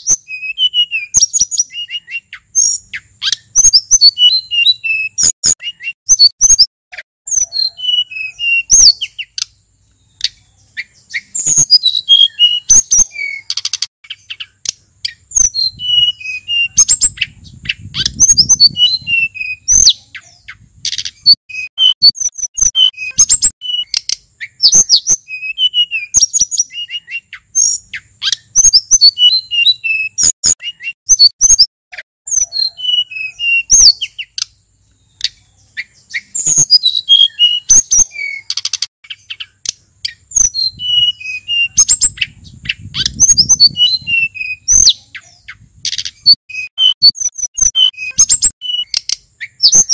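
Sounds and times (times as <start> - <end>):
songbird singing: 0.0 - 49.9.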